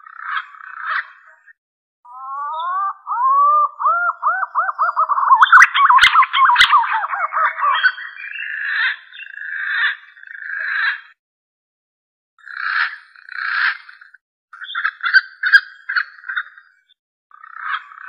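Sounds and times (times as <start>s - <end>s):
pigeon whistled calls: 2.2s - 8.5s.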